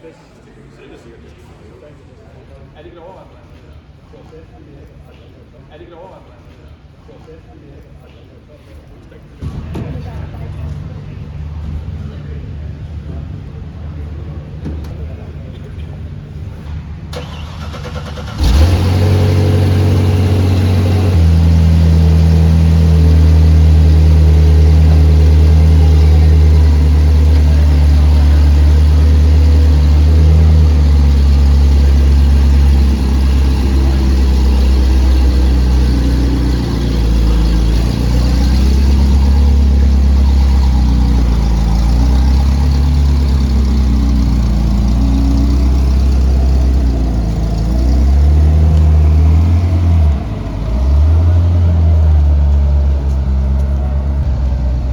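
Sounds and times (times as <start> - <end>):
car engine starting and idling: 9.4 - 54.9.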